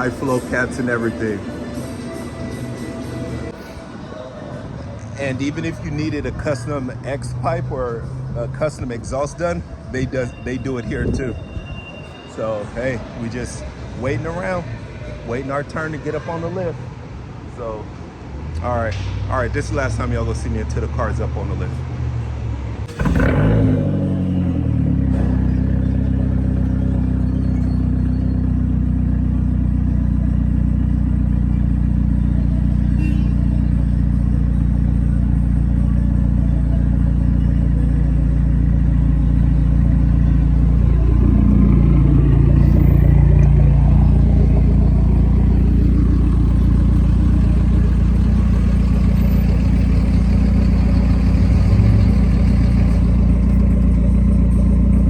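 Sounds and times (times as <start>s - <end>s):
car engine starting and idling: 0.0s - 3.6s, 22.8s - 55.0s.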